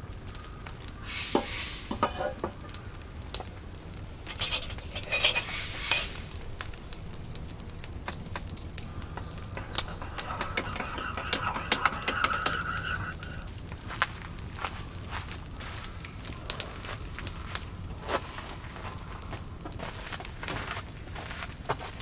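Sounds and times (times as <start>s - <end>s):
light clinks and knocks: 4.2s - 6.3s.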